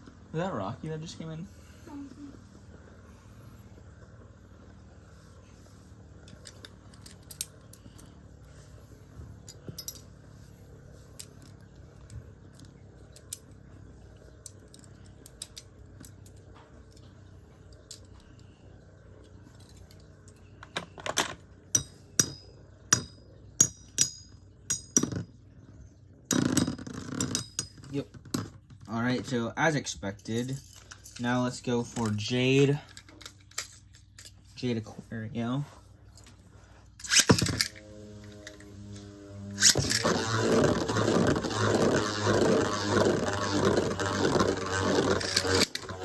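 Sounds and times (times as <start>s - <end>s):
sharp metallic clinks: 21.7s - 25.1s
spinning tops whirring: 37.0s - 46.0s.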